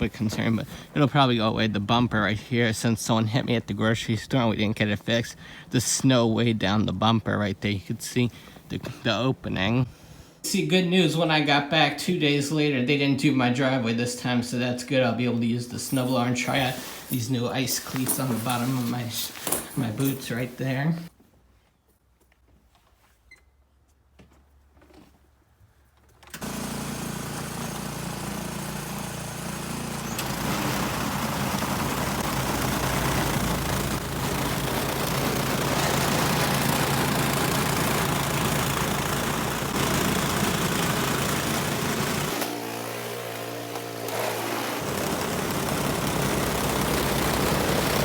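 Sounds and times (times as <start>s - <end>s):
snowblower engine running: 15.9s - 20.1s, 26.4s - 48.0s.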